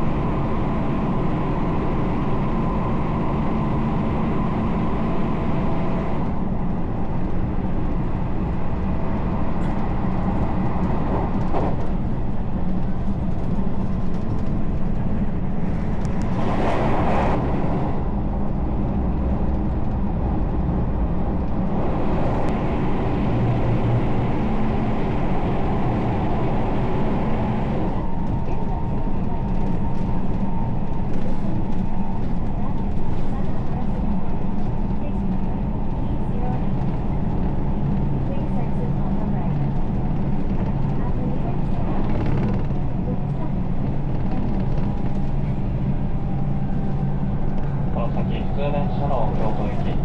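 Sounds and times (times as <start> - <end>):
train wheels rumbling on rails: 0.0 - 50.0
rush of noise: 15.5 - 28.4.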